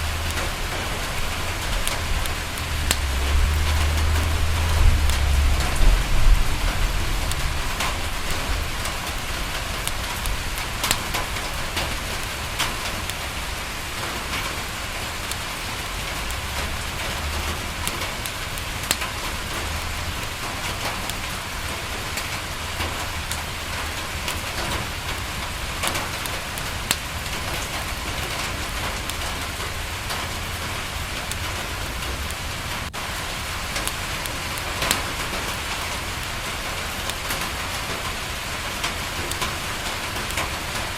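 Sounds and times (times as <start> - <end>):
low rumble: 0.0 - 10.5
rain on a window: 0.0 - 40.9.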